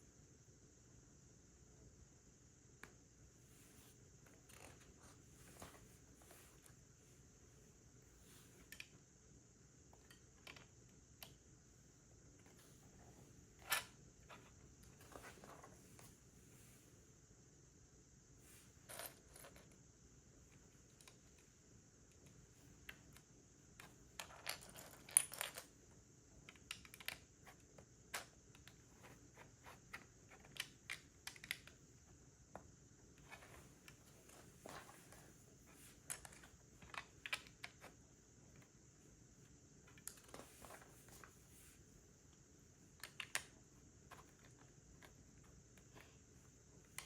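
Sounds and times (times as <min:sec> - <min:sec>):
plastic bricks clicking together: 0:26.5 - 0:27.3, 0:43.0 - 0:43.6.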